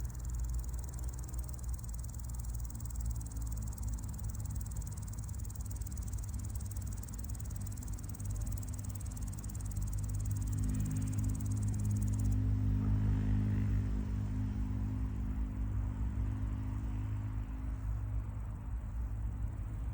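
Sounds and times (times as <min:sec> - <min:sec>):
grasshopper stridulating: 0:00.0 - 0:12.4.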